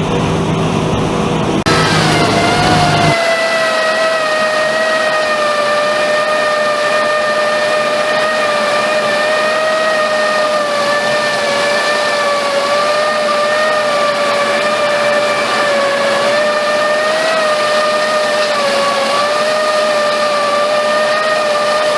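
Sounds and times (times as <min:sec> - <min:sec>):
farm machine engine whining: 0:01.3 - 0:21.9.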